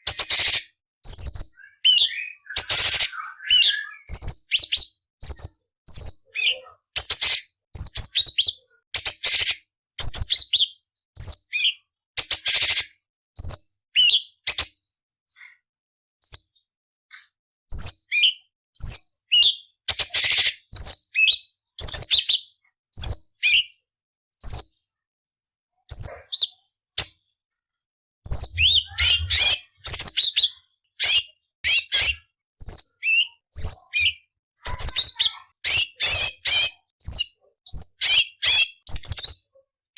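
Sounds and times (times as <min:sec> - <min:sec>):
bird singing sharp chirps: 0:28.3 - 0:34.2.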